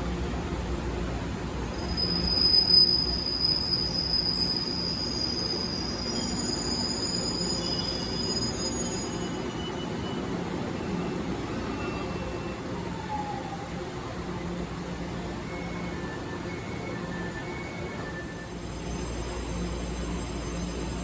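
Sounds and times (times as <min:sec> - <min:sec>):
train rumbling: 0:00.0 - 0:21.0
high-pitched wheel squeal: 0:01.8 - 0:10.2.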